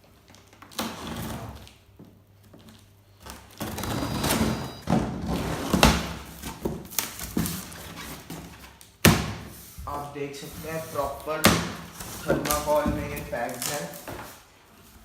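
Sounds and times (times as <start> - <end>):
cardboard scraping and rustling: 9.5 - 15.0.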